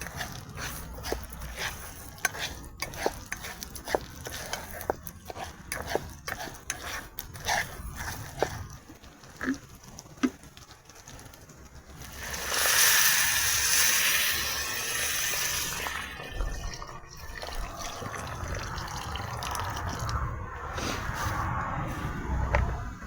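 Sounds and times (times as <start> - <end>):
water pouring into a pot: 12.0 - 20.3.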